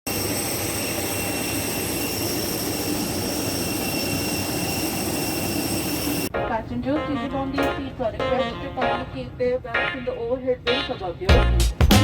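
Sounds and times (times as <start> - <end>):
high-pitched whine: 0.1 - 6.3.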